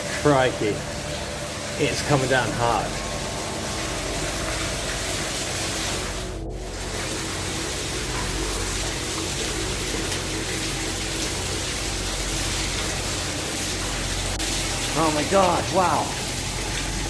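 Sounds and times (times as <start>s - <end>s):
water pouring rushing: 0.0s - 17.0s.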